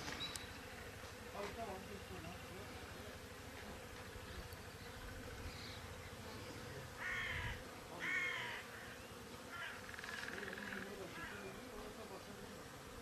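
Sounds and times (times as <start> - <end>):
crow cawing: 7.0 - 11.5.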